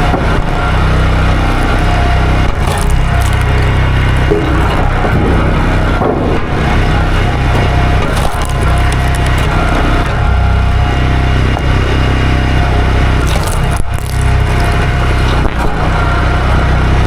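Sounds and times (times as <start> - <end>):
chainsaw cutting wood: 0.9 - 6.1, 6.8 - 11.6, 13.1 - 16.1.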